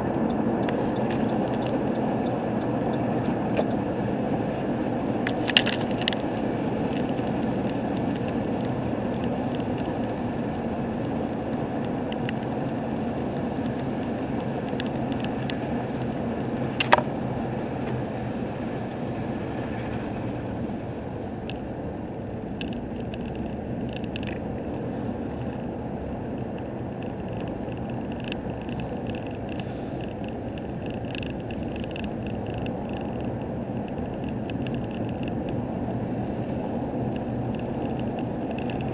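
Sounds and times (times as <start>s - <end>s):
vehicle road and engine noise: 0.0s - 38.9s
faint ticks: 11.8s - 12.6s, 26.3s - 35.6s.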